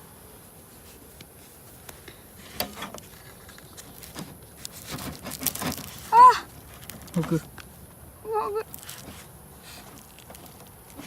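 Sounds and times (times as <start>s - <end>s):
aluminium foil crinkling: 2.8s - 7.8s, 8.6s - 11.0s.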